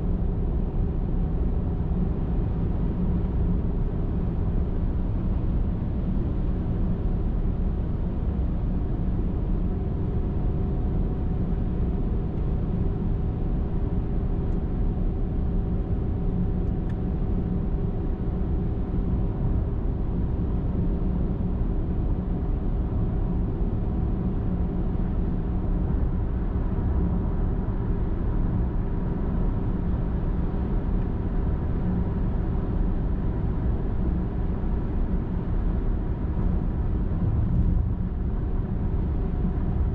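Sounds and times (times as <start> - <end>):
car driving on highway: 0.0 - 39.9.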